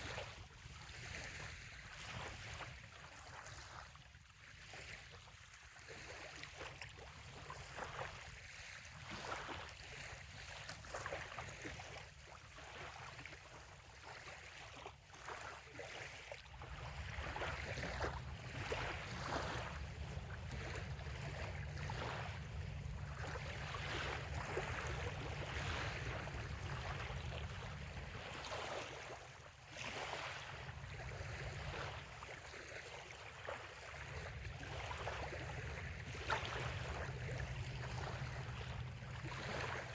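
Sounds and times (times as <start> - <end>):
waves lapping on sandy shore: 0.0 - 39.9
low rumble: 18.1 - 28.3.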